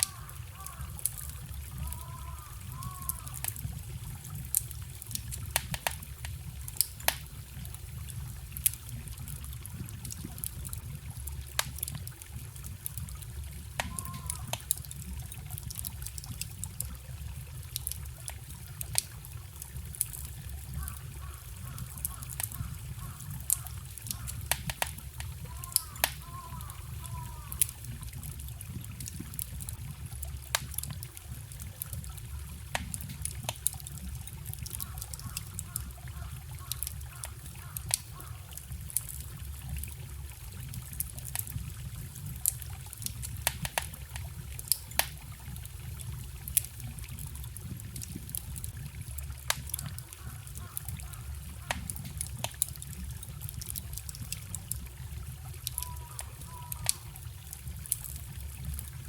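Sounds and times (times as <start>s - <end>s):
forest stream rushing: 0.0s - 28.4s
campfire crackling and popping: 0.0s - 59.0s.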